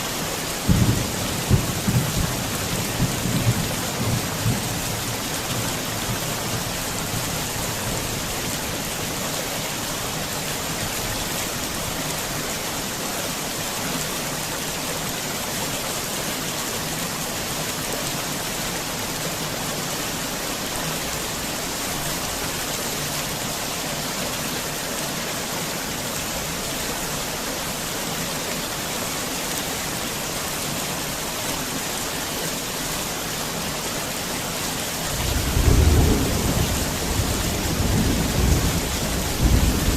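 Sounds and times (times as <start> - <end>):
heavy rain: 0.0 - 39.9
thunder rumble: 35.2 - 39.9.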